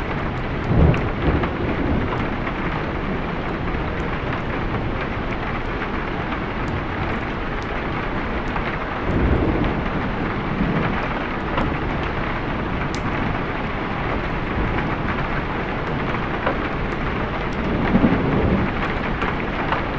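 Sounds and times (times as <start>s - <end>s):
thunder rolling: 0.0s - 5.0s, 9.0s - 19.8s
heavy rain: 0.0s - 19.9s.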